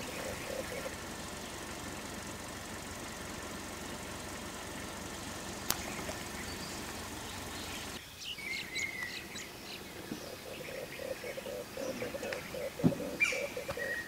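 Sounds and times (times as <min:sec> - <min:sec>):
steady noise haze: 0:00.0 - 0:01.9
forest birds calling: 0:00.0 - 0:14.0.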